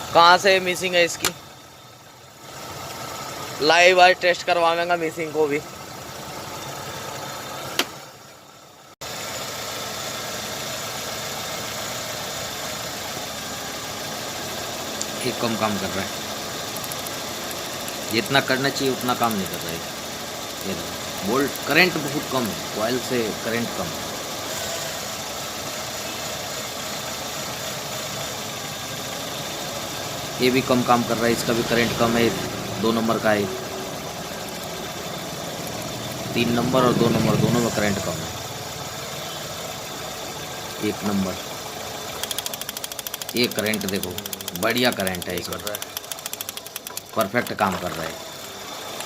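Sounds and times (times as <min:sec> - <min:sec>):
engine idling roughly with misfire: 0:00.0 - 0:49.0
sharp click: 0:01.2 - 0:01.4, 0:42.2 - 0:47.8.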